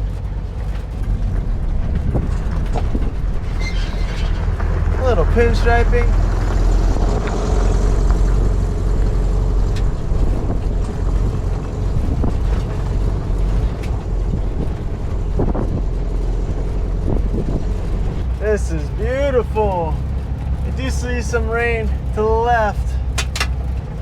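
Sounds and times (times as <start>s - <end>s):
knocks and rattles: 0.0s - 5.0s, 22.9s - 24.0s
van engine low rumble: 0.0s - 24.0s.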